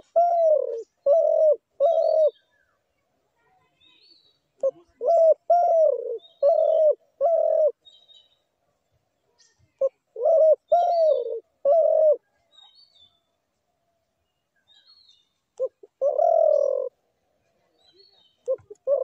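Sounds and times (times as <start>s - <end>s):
dove cooing: 0.0s - 2.4s, 4.6s - 7.8s, 9.7s - 12.3s, 15.6s - 17.0s, 18.4s - 19.0s
faint high bird chirps: 0.0s - 8.6s, 9.2s - 13.4s, 14.1s - 19.0s.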